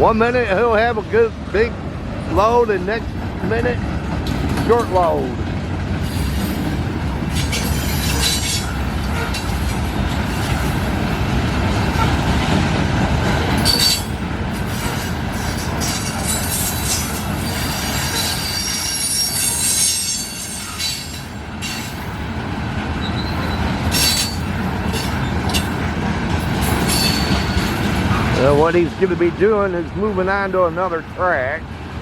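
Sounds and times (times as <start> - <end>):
freight train wheels rumbling: 0.0 - 32.0
high wheel squeal: 7.3 - 10.7, 13.5 - 22.1, 23.0 - 25.7, 26.7 - 28.3
sharp clanks: 7.3 - 10.8, 23.8 - 25.8.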